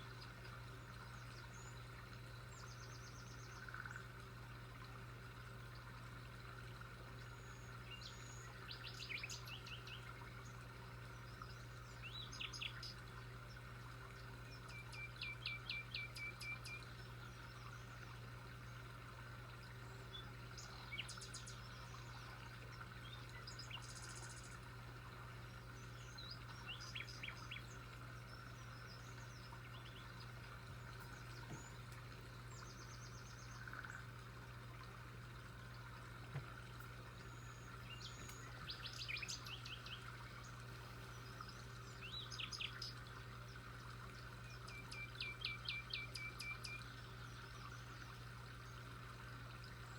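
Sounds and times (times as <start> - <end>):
small birds chirping: 7.2 - 18.8, 19.6 - 34.2, 36.2 - 48.9.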